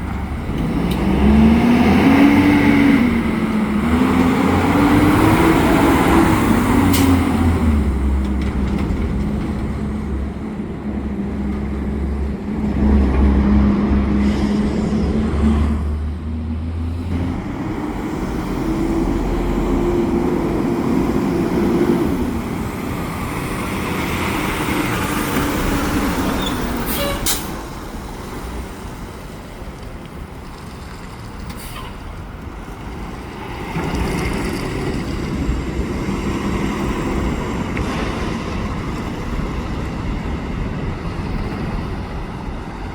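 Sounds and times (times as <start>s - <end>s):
garbage truck engines passing: 0.0s - 42.9s
air brake hisses: 31.6s - 32.0s.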